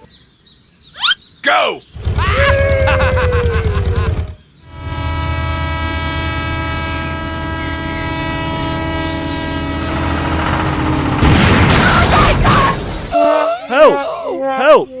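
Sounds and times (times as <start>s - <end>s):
low pulsing chug: 2.0s - 12.4s
many-toned machine drone: 4.8s - 12.2s
loud noisy clatter: 9.5s - 13.2s.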